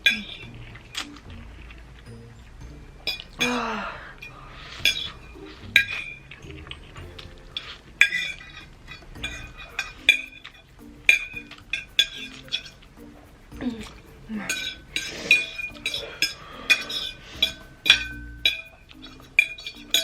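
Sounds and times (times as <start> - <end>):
breathy vocal sound: 3.4 - 4.8, 13.6 - 17.6
utensil clinking against bowl: 4.2 - 20.0.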